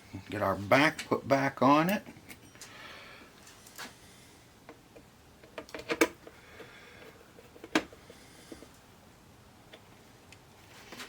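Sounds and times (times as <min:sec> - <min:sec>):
clicks and knocks of parts: 0:04.7 - 0:08.8.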